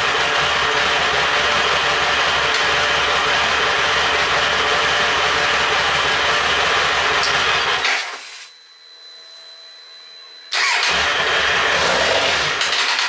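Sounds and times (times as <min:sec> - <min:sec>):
motorcycle engine running: 0:00.0 - 0:07.8, 0:10.6 - 0:12.9.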